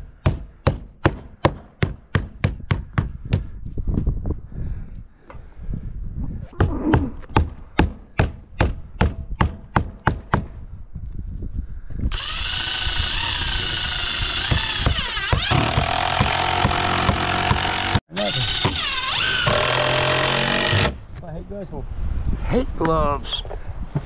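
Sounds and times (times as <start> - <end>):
hammer striking nails into wood: 0.2 - 3.5, 6.9 - 10.6, 14.4 - 18.0
motor running: 12.1 - 20.9.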